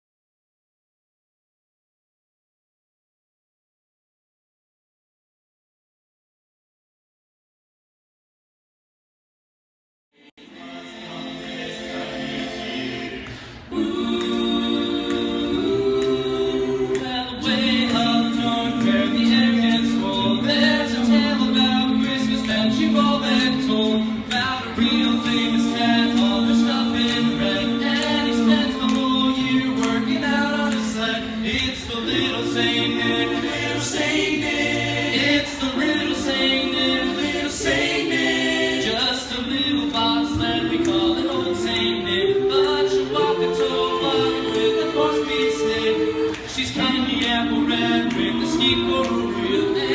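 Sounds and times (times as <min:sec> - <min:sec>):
a cappella group singing chords: 0:10.2 - 0:49.9.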